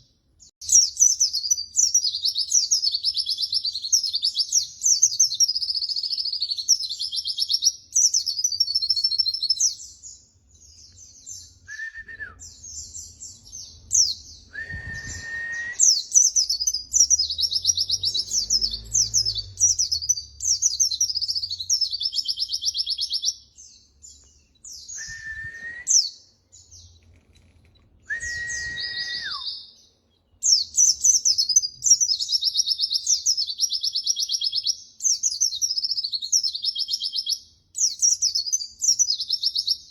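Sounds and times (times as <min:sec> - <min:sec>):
short clear bird whistles: 0:10.9 - 0:23.4, 0:24.1 - 0:26.2, 0:27.8 - 0:29.8.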